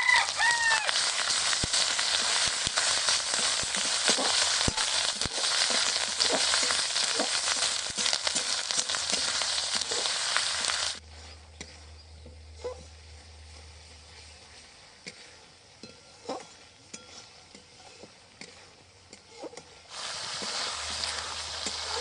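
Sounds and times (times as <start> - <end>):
onions sizzling in hot oil: 0.0 - 11.0, 19.9 - 22.0.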